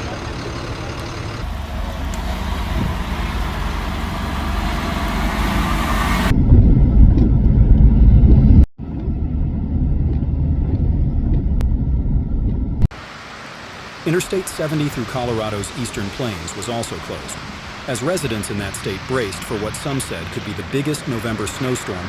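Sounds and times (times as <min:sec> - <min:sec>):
vehicle engine rumble: 0:00.0 - 0:12.9.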